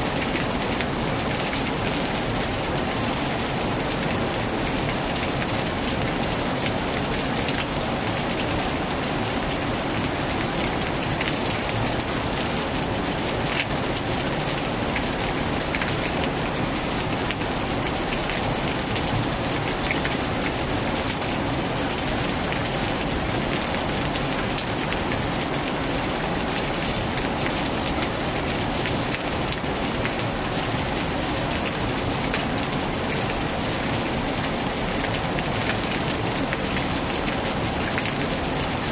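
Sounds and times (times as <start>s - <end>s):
heavy rain on a tin roof: 0.0s - 38.9s.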